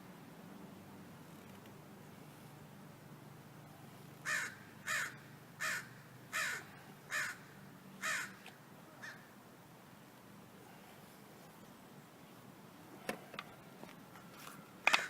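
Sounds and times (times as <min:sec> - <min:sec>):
crow cawing: 0:04.2 - 0:08.4, 0:09.0 - 0:09.3.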